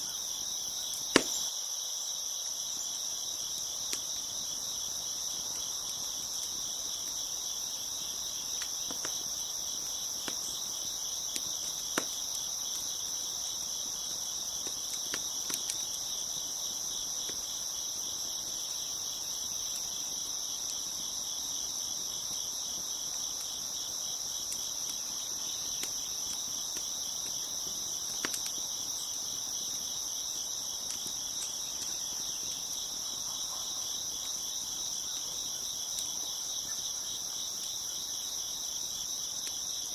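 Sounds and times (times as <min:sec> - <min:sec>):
crickets chirping: 0:00.0 - 0:39.9
wood fire popping: 0:00.8 - 0:01.5, 0:03.0 - 0:33.3.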